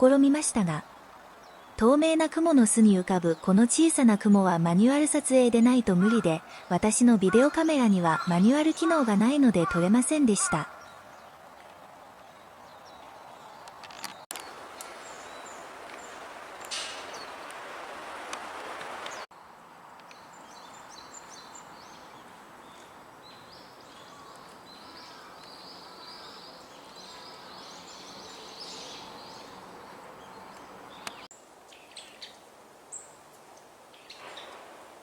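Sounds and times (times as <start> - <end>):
songbirds twittering: 0.0 - 18.0, 18.6 - 34.8.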